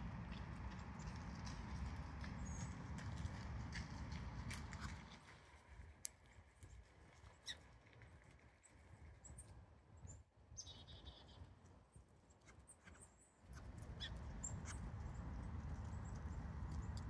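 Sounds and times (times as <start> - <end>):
small birds chirping: 8.6 - 11.4, 12.3 - 17.0
steady low rumble: 13.6 - 17.0.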